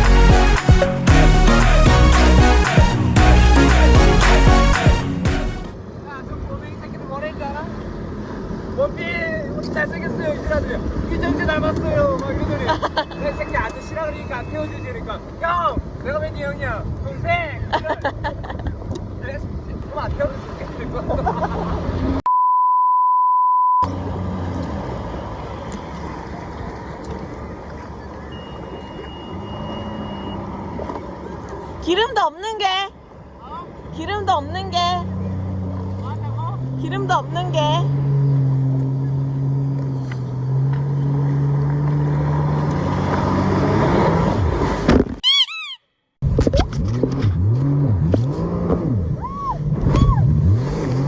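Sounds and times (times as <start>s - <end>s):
wind: 5.8s - 22.3s, 23.8s - 51.0s
censor bleep: 22.3s - 23.9s, 28.3s - 30.4s, 45.2s - 45.8s
faint thin high tone: 45.2s - 45.8s
engine revving up and down: 46.7s - 51.0s.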